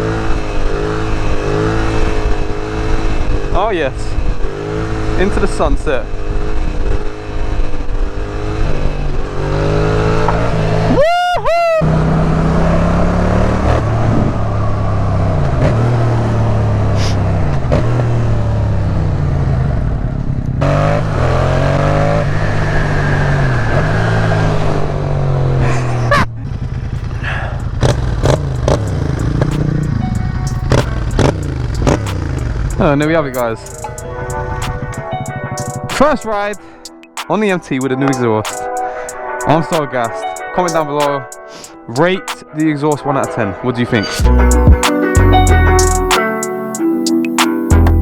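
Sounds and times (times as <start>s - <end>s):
motorcycle engine accelerating: 0.0s - 11.0s, 11.8s - 36.1s
high-pitched warbling tone: 28.2s - 36.0s, 44.1s - 48.0s.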